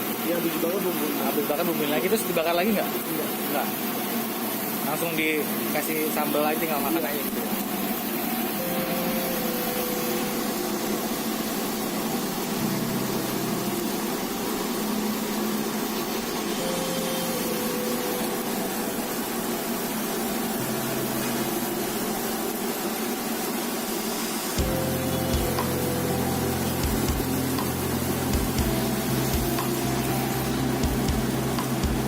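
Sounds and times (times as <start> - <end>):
electric fan blowing air: 0.0 - 32.0
low motor hum: 24.6 - 32.0.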